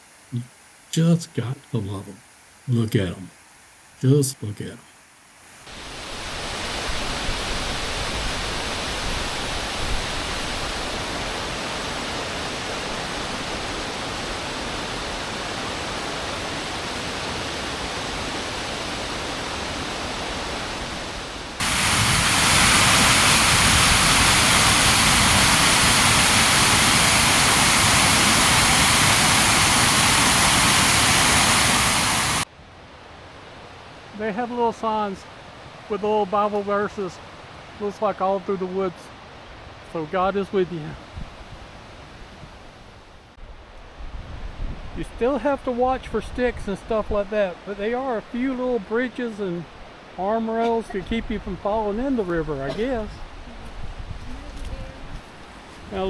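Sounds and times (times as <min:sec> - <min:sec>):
waterfall pouring over rocks: 0:21.6 - 0:32.5.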